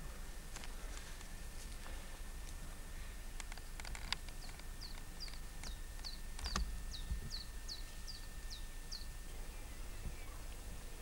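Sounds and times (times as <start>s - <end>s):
bird chirping: 4.3s - 11.0s.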